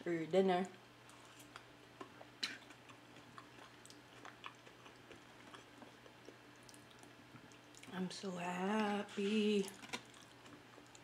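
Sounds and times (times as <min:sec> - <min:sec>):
wet chewing: 0:01.0 - 0:08.0, 0:09.6 - 0:11.0.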